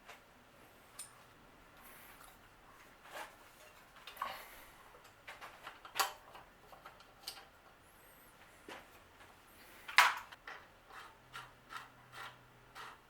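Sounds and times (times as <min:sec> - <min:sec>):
tools and bike parts clicking: 0:05.0 - 0:07.5.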